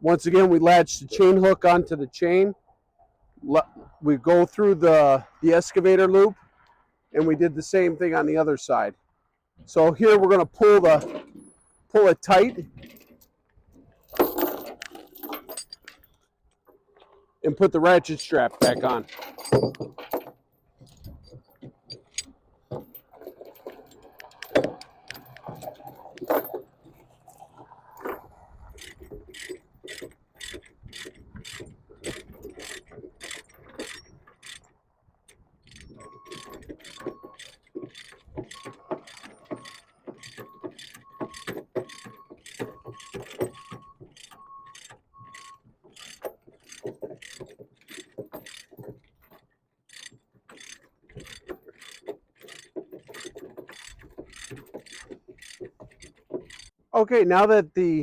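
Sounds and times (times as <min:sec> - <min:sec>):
chain knocking: 0:14.0 - 0:16.2, 0:18.4 - 0:27.1, 0:35.6 - 0:56.7
ratchet binder pawl clicking: 0:28.7 - 0:49.3, 0:49.9 - 0:56.8.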